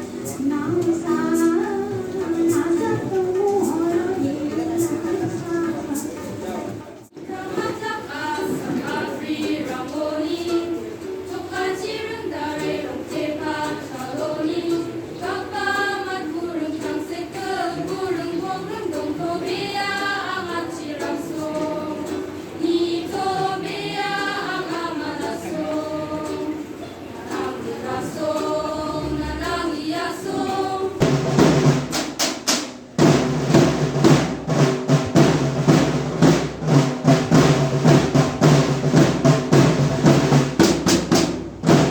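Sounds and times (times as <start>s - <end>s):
voices singing slow song: 0.0s - 6.1s, 7.2s - 31.4s
loud fast drumming: 31.0s - 41.9s.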